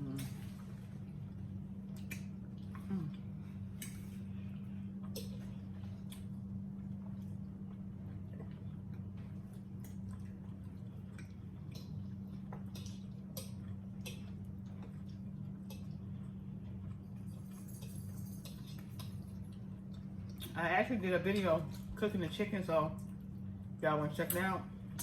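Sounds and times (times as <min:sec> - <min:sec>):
steady low hum: 0:00.0 - 0:25.0
people eating clicks and smacks: 0:01.8 - 0:22.2.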